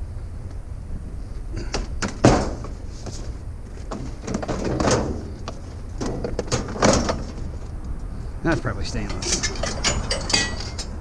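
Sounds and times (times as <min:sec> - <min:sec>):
steady low rumble: 0:00.0 - 0:02.0, 0:02.6 - 0:11.0
knocks and clatters of parts: 0:01.6 - 0:07.7, 0:08.6 - 0:11.0.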